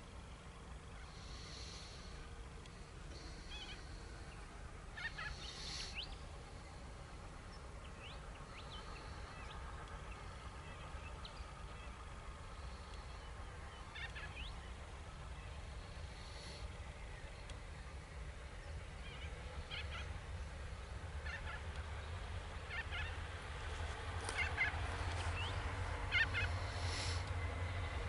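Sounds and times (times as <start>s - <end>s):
distant train low rumble: 0.0s - 28.0s
birds harsh scratchy calls: 5.0s - 6.2s, 24.2s - 25.5s, 26.1s - 27.2s.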